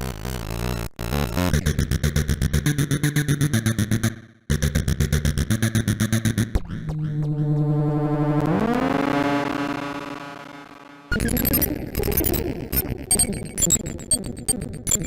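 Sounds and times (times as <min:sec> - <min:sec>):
synthesizer held note: 0:07.3 - 0:11.4.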